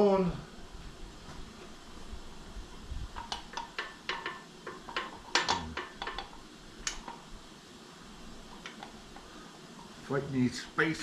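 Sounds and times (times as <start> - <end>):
light metal clinks and taps: 3.2 - 7.2.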